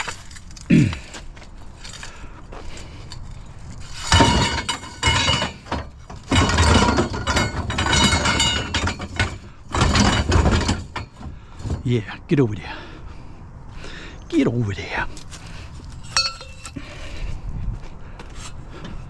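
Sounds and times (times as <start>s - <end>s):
metal tubes clanking and scraping: 0.0s - 12.0s, 15.1s - 16.9s.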